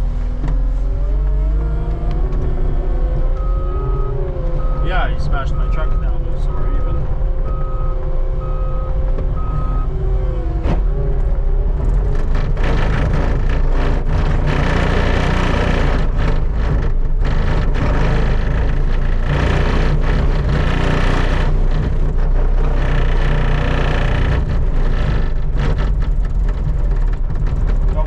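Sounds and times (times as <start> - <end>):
skid steer engine running: 0.0 - 28.0
backup alarm beeping: 3.4 - 9.9.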